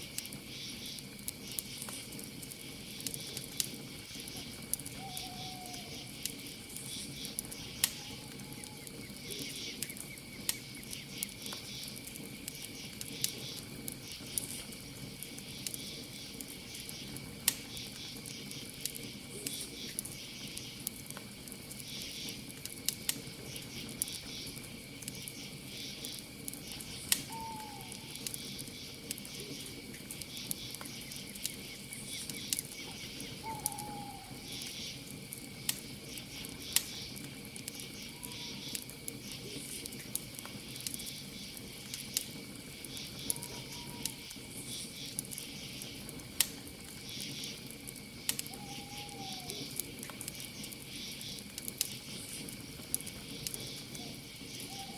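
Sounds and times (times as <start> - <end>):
campfire crackling and popping: 0.0 - 54.9
crickets chirping: 0.0 - 54.9
owl calling: 5.0 - 6.1, 7.9 - 8.9, 27.3 - 28.2, 33.4 - 34.7, 38.1 - 38.7, 43.2 - 44.3, 48.5 - 49.7, 54.0 - 54.9.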